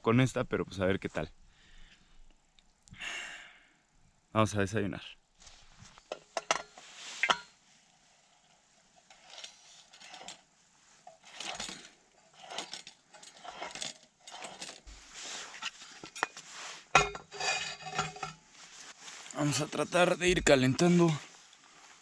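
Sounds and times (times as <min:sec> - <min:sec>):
rustling: 0:05.4 - 0:22.0
cooking gear clinking and rattling: 0:09.0 - 0:15.1, 0:15.8 - 0:18.4.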